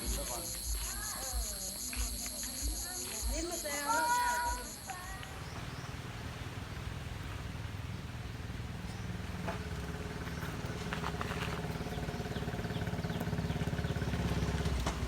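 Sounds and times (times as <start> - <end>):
small engine puttering: 8.9 - 15.0.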